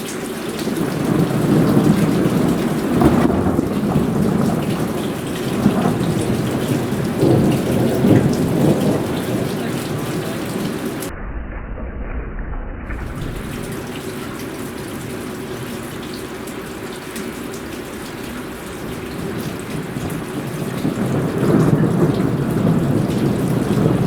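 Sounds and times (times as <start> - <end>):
heavy rain: 0.0 - 11.1, 12.9 - 24.0
thunder rumbling: 0.0 - 24.0.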